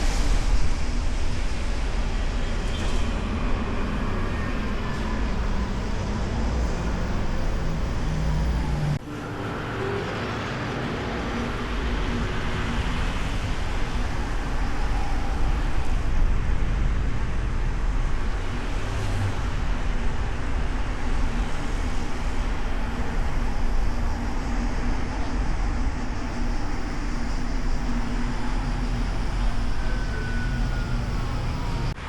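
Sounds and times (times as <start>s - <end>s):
road traffic rumble: 15.4s - 32.0s.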